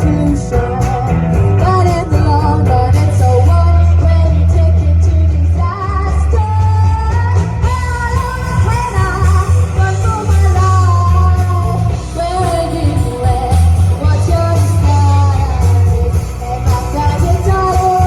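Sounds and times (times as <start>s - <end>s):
heavy bass line: 0.0s - 18.0s
lead vocal singing: 0.0s - 18.0s
live rock band playing: 0.0s - 18.0s.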